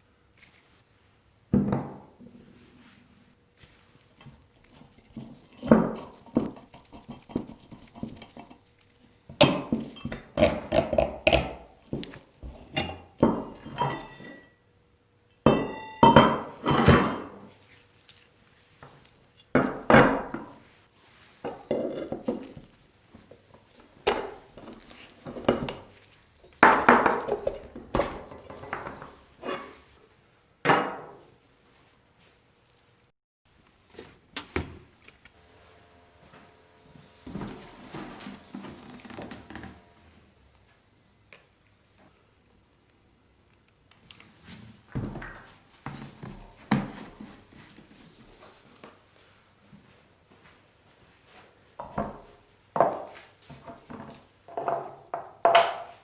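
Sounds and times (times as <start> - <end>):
metal parts and tools clinking: 18.1 - 18.3.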